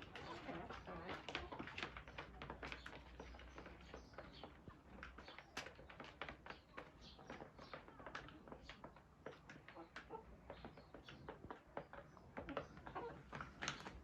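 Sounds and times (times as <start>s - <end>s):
chickens pecking taps: 0.0s - 14.0s.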